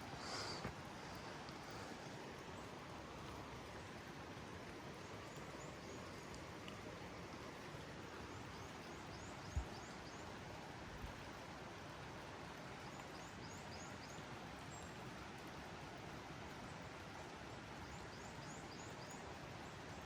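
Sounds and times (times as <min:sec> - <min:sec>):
rain falling in a forest: 0:00.0 - 0:20.0
small birds chirping: 0:04.9 - 0:06.8, 0:08.0 - 0:10.4.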